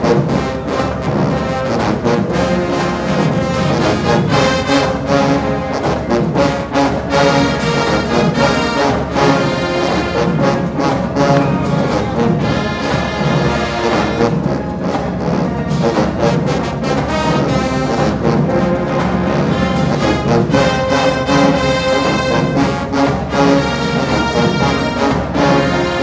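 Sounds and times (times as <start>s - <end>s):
brass section playing: 0.0s - 26.0s
steady drum beat: 0.0s - 26.0s.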